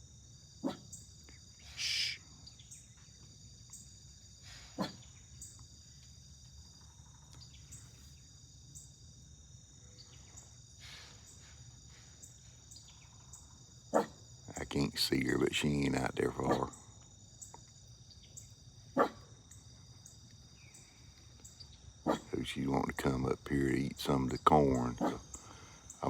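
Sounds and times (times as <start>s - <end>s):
crickets trilling: 0.0s - 26.0s
deer alarm snort: 1.6s - 2.2s, 4.4s - 5.2s, 10.8s - 11.6s, 15.6s - 16.8s, 22.1s - 22.4s, 24.8s - 26.0s.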